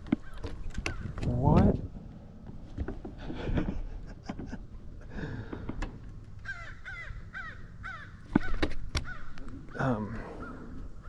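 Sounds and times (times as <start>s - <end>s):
wind rumbling on microphone: 0.0s - 7.5s
crows cawing: 5.2s - 11.0s.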